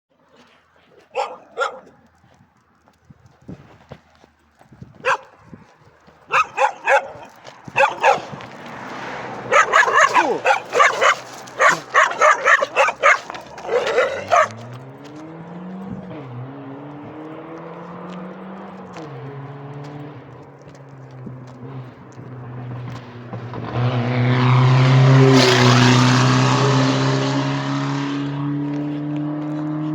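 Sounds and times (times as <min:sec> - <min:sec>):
dogs barking aggressively: 0:00.9 - 0:02.1, 0:04.9 - 0:23.2
car engine revving: 0:06.3 - 0:29.9.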